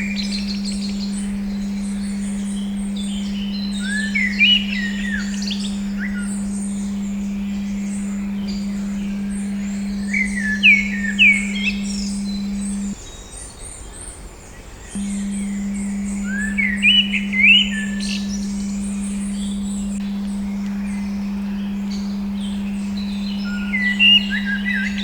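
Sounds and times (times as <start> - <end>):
steady pure tone: 0.0 - 13.0, 15.0 - 25.0
birdsong: 0.0 - 25.0.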